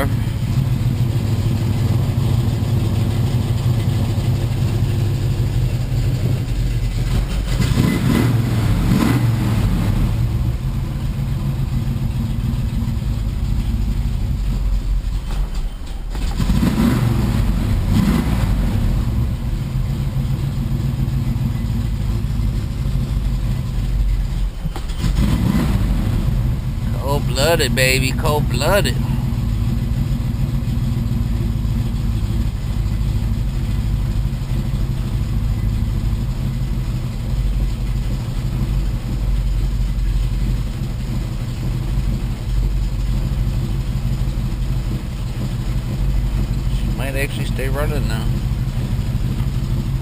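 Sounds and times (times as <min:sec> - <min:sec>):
car engine revving: 0:06.0 - 0:10.4, 0:16.3 - 0:19.4, 0:25.0 - 0:29.8.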